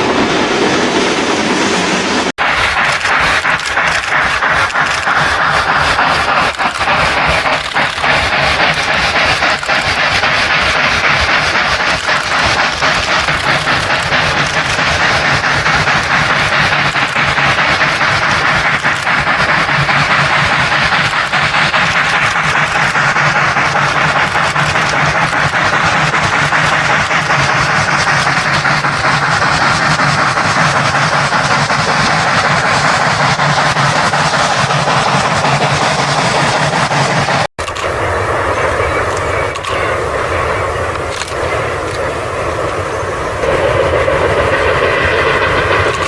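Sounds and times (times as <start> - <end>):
steam locomotive passing: 0.0 - 46.0.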